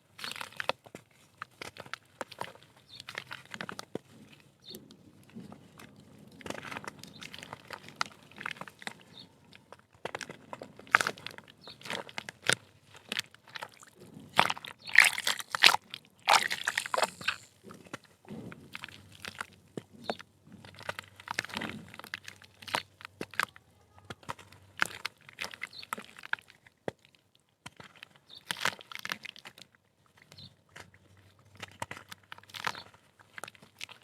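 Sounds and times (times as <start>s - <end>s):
dirt crumbling by hand: 10.0s - 26.1s.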